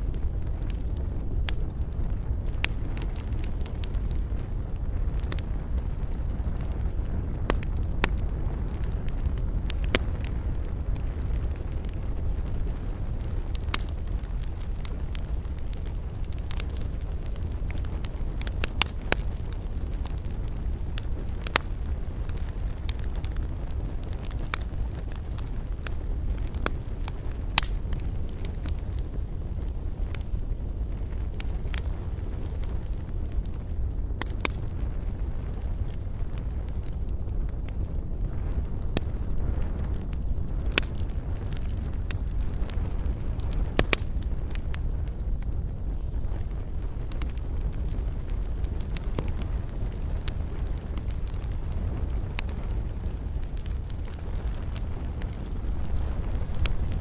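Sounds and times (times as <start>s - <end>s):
fire crackling and popping: 0.0s - 57.0s
fire flames rumbling: 0.0s - 57.0s.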